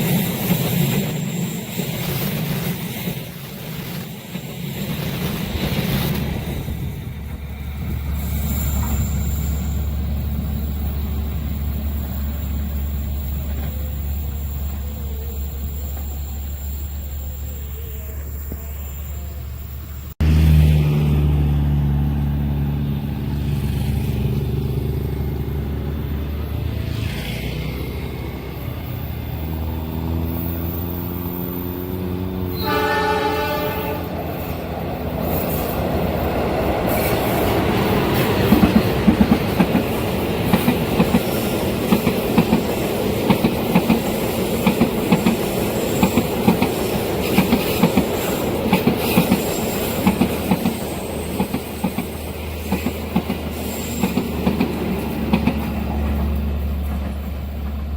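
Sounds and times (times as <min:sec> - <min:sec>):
train engine drone: 0:00.0 - 0:57.9
train rushing past: 0:00.0 - 0:57.9
train horn: 0:32.4 - 0:34.5
wheels clacking over rail joints: 0:34.4 - 0:57.9.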